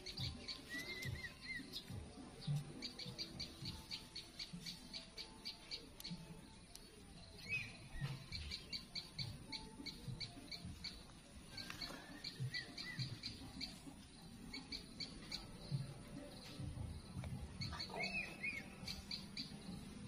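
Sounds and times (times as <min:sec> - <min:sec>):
warbled bird calls: 0:07.4 - 0:13.9, 0:17.4 - 0:20.0.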